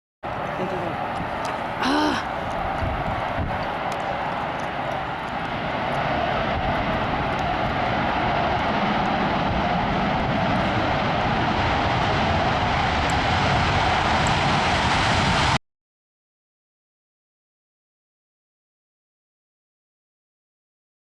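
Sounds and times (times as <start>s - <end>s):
jet aircraft engine roar: 0.2s - 15.6s.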